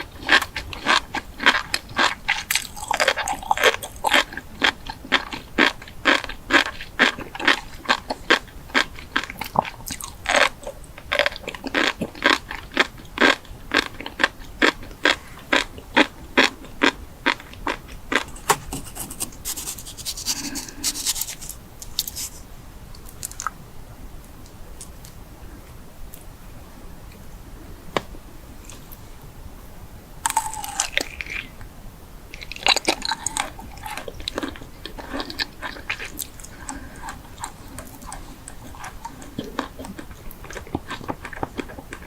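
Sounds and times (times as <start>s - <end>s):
person chewing crunchy food: 0.0s - 22.4s, 30.2s - 31.5s, 32.4s - 42.0s.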